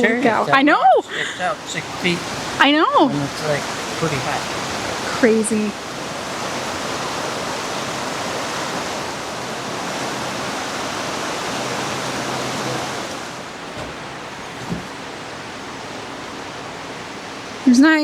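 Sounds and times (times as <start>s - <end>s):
river in flood rushing: 0.0s - 18.0s
soft knock: 13.8s - 15.0s.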